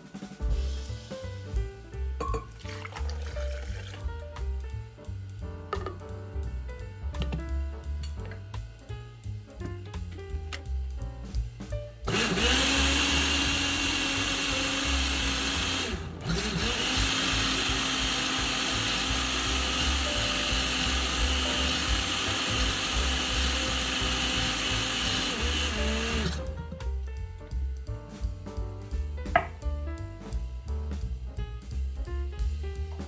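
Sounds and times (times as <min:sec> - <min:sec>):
background music with drum beat: 0:00.0 - 0:33.0
electric blender running: 0:12.1 - 0:26.4.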